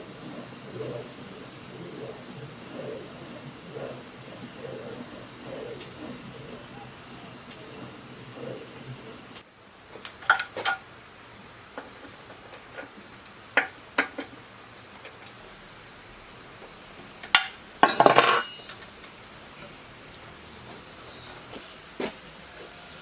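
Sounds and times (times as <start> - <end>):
metal clatter: 17.3 - 18.8
metal tools clinking: 17.8 - 18.9.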